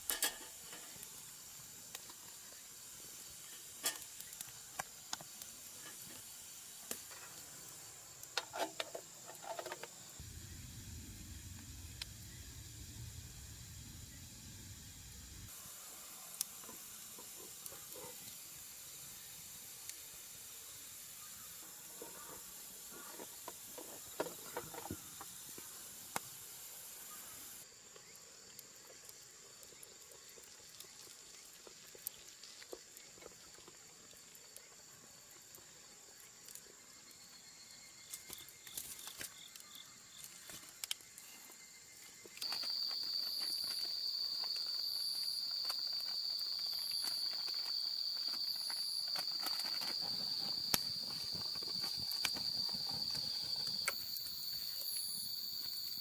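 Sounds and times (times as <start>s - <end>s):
steady hiss: 0.0s - 33.1s, 39.4s - 56.0s
high constant insect tone: 0.0s - 56.0s
shrill insect trill: 41.4s - 56.0s.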